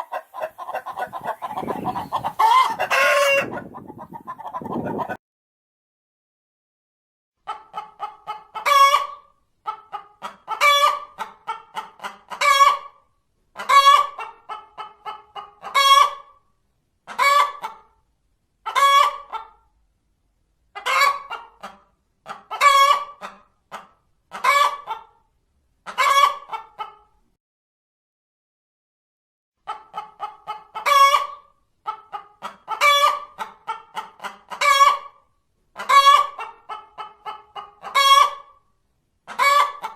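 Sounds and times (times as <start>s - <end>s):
hen cackling and squawking: 0.0s - 5.2s, 7.5s - 12.9s, 13.6s - 16.3s, 20.8s - 25.1s, 25.9s - 27.0s, 29.7s - 35.2s, 35.8s - 38.6s, 39.3s - 39.9s.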